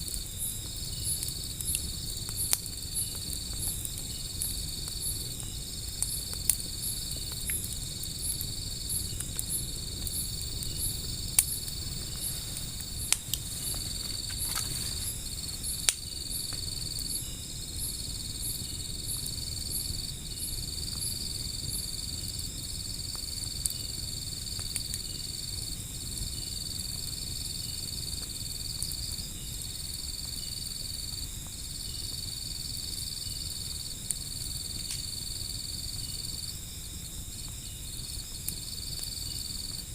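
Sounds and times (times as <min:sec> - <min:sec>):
insects trilling: 0:00.0 - 0:39.9
wood fire crackling: 0:00.0 - 0:39.9
fast pulsing insect chirp: 0:00.1 - 0:23.0.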